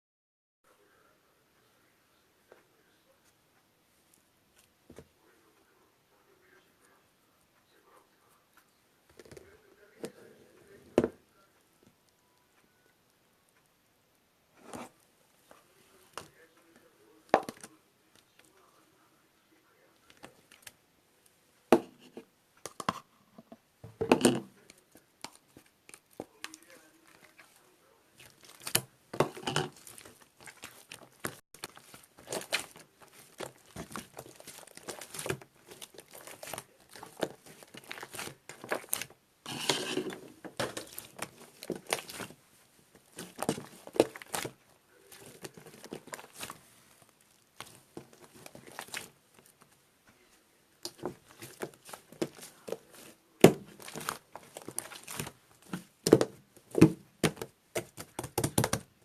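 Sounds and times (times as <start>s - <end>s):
crinkling handling noise: 21.9s - 59.0s.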